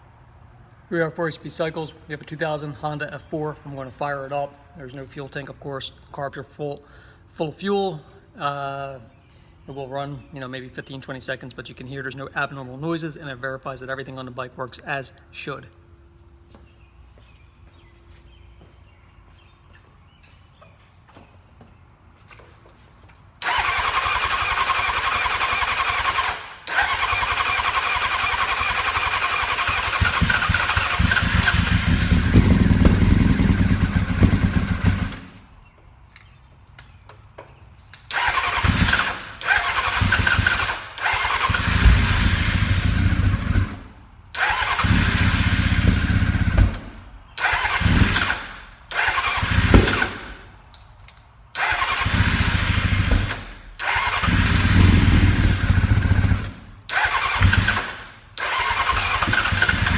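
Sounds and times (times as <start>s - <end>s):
motorcycle engine cranking: 23.4s - 35.6s, 38.0s - 50.8s, 51.5s - 59.9s
motorcycle engine running: 28.2s - 35.4s, 38.2s - 44.0s, 44.6s - 47.0s, 47.6s - 48.4s, 49.2s - 50.4s, 51.9s - 57.9s, 58.6s - 59.9s.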